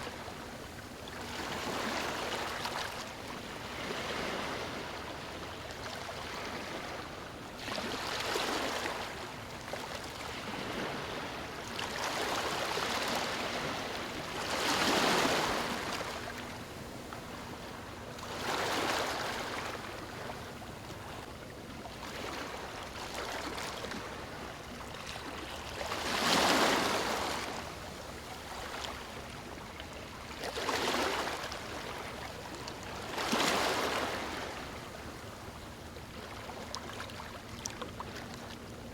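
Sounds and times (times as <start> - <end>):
waves breaking on stony shore: 10.3 - 16.4, 18.3 - 19.8, 25.2 - 28.9, 30.4 - 32.1, 33.0 - 34.7.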